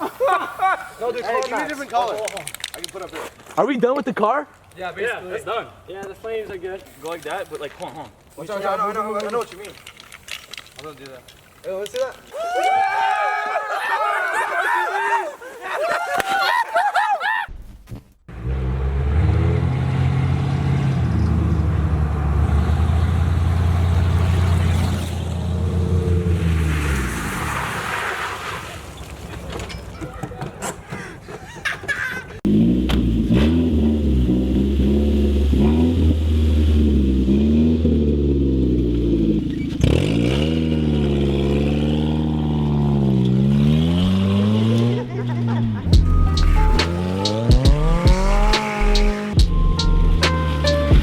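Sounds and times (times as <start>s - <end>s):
car engine droning: 18.3s - 28.0s, 32.5s - 51.0s
road noise: 18.3s - 51.0s.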